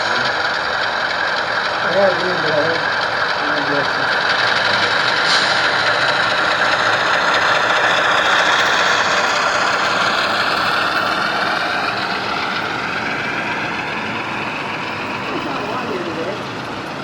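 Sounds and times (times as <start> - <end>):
model train running with whine: 0.0 - 17.0.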